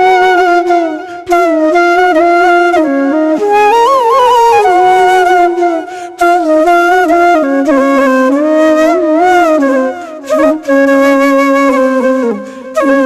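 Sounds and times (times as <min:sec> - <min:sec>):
solo flute melody: 0:00.0 - 0:13.0.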